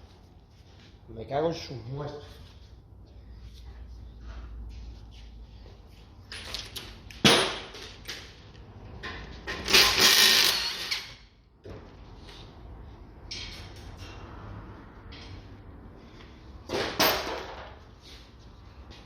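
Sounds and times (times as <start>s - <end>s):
power tool burst: 9.7s - 10.9s.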